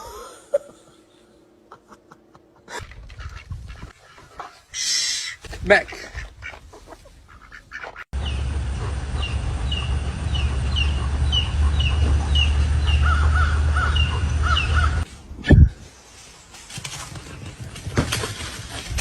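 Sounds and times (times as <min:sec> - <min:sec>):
wind rumble on microphone: 0:02.8 - 0:04.0, 0:15.4 - 0:15.9
bird calling in falling calls: 0:02.8 - 0:15.1
lower bird calls: 0:06.2 - 0:15.0.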